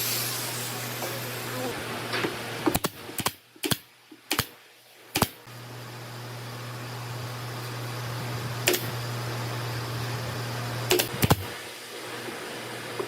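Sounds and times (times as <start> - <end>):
motor hum: 5.5 - 11.6.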